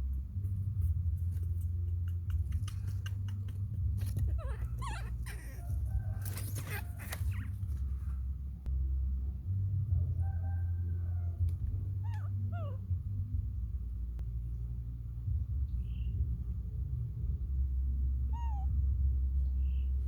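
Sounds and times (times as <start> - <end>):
low hum: 0.0 - 20.0
baby monkey squeaking and crying: 1.3 - 7.9, 11.9 - 13.0, 18.3 - 18.8.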